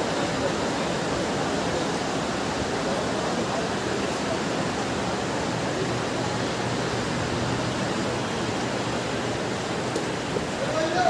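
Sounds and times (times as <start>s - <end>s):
railway station hubbub: 0.0s - 11.0s.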